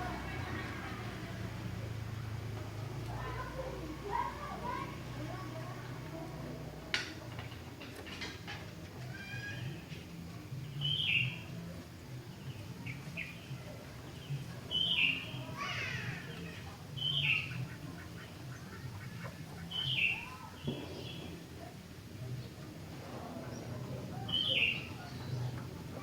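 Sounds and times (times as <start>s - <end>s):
bird singing chirpy phrases: 10.6s - 11.6s, 12.2s - 21.4s, 23.5s - 25.6s.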